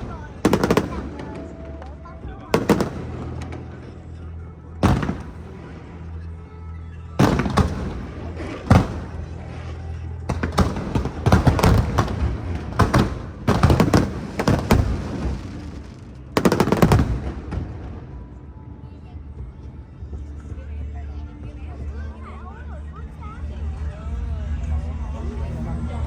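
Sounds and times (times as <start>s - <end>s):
fireworks bangs and crackling: 0.0s - 4.1s, 4.8s - 6.2s, 7.2s - 18.4s
background music: 0.0s - 26.0s.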